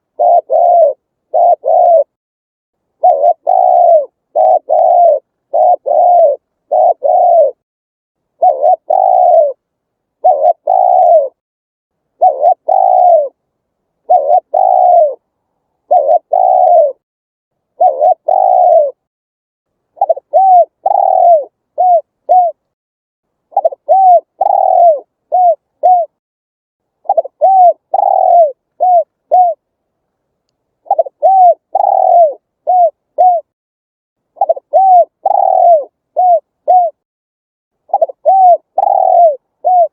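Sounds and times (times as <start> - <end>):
dove cooing: 0.0 - 2.2, 3.0 - 7.6, 8.4 - 9.6, 10.2 - 11.4, 12.2 - 13.4, 14.0 - 15.2, 15.8 - 17.0, 17.7 - 19.1, 20.0 - 22.7, 23.5 - 26.2, 27.0 - 29.6, 30.8 - 33.5, 34.4 - 37.0, 37.9 - 39.9.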